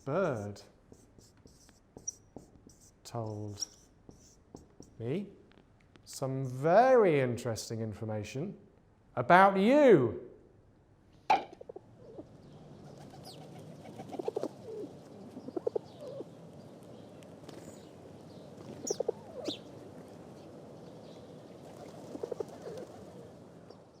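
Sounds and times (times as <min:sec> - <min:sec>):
small birds chirping: 0:00.0 - 0:05.2, 0:11.6 - 0:24.0
pigeons cooing: 0:11.6 - 0:16.4, 0:18.6 - 0:19.8, 0:21.6 - 0:23.4.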